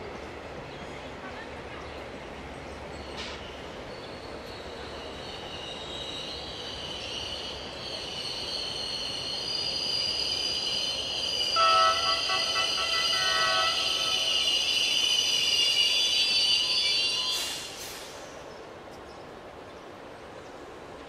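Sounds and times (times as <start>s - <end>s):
train wheels squealing: 3.0s - 18.4s
locomotive horn: 11.6s - 14.6s.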